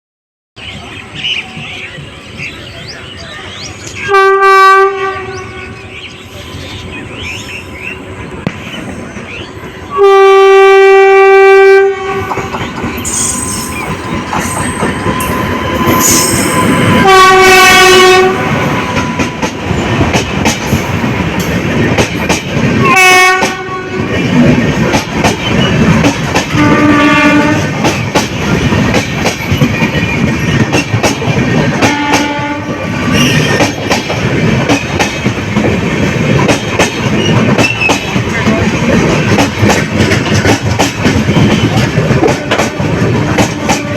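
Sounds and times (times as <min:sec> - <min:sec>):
train horn blasts: 0:04.0 - 0:05.9, 0:09.7 - 0:19.4, 0:22.8 - 0:24.2, 0:26.5 - 0:27.8, 0:31.8 - 0:33.5, 0:42.3 - 0:43.9
train wheels clattering on rails: 0:07.2 - 0:43.9.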